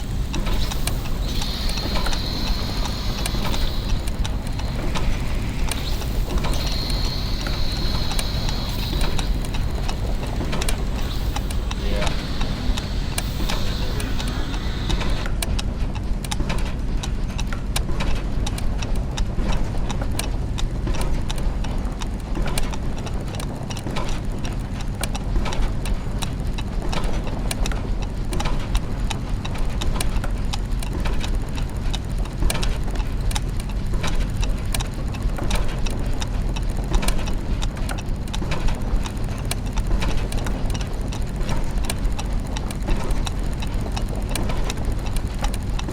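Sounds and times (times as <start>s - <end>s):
high hiss: 0.0s - 15.3s
gears ticking and clicking: 0.0s - 45.9s
low mechanical hum: 0.0s - 45.9s.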